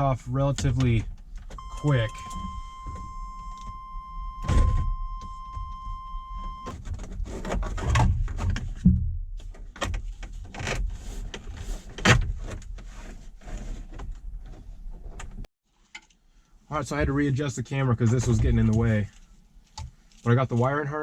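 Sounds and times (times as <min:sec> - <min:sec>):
steady high beep: 0:01.6 - 0:06.7.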